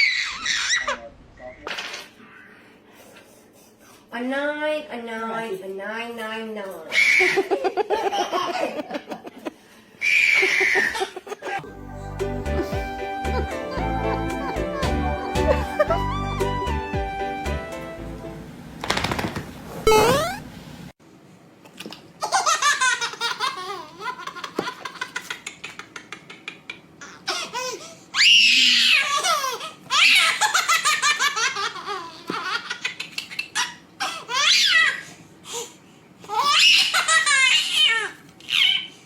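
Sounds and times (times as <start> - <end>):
young child laughing: 7.0 - 9.5, 10.2 - 11.6, 22.2 - 27.9.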